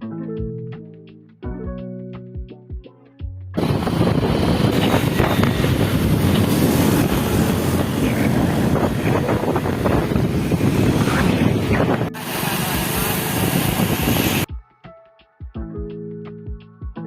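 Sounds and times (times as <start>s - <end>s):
vehicle low rumble: 3.6s - 14.5s
wind buffeting microphone: 3.6s - 14.5s.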